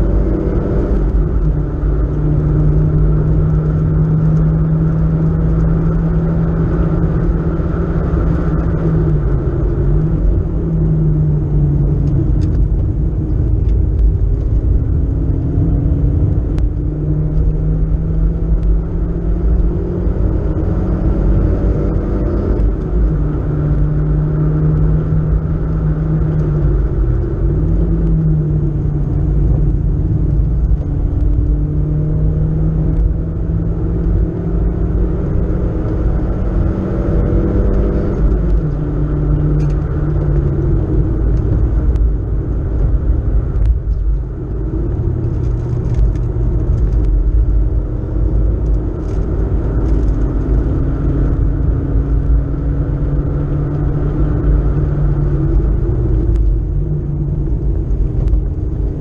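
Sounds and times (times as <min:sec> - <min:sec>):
tyre and road rumble: 0:00.0 - 0:59.0
car engine revving high: 0:14.3 - 0:59.0.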